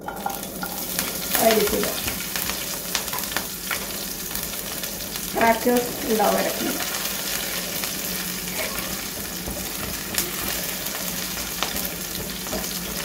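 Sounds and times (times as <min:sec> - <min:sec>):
chillies sizzling in hot oil: 0:00.0 - 0:13.0
wooden spatula stirring: 0:06.5 - 0:13.0.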